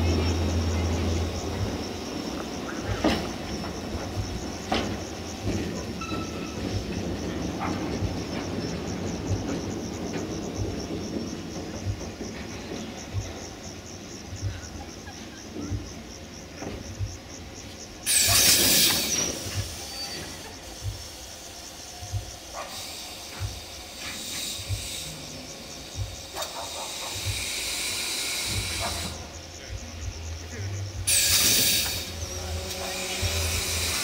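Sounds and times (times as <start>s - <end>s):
train wheels knocking over rail joints: 0.0s - 34.0s
loud hiss: 16.9s - 34.0s.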